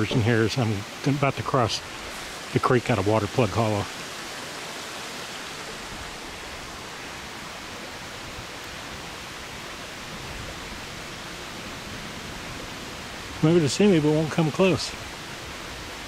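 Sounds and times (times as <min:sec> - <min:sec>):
creek running over rocks: 0:00.0 - 0:16.0.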